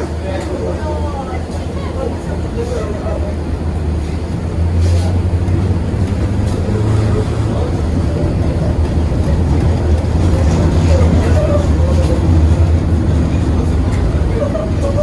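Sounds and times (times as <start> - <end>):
tram motors and wheels rumbling: 0.0 - 15.0.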